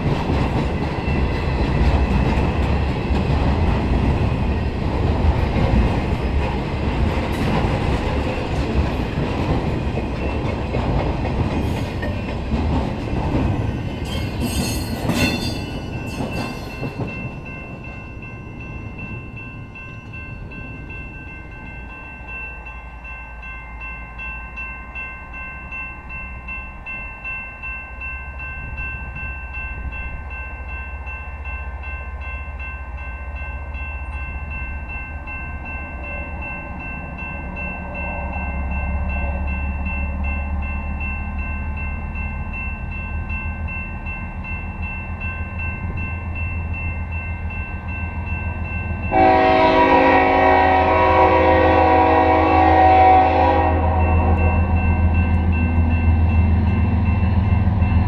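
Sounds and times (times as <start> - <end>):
sharp clacks of train cars: 0.0 - 18.2
freight train wheels rumbling: 0.0 - 58.0.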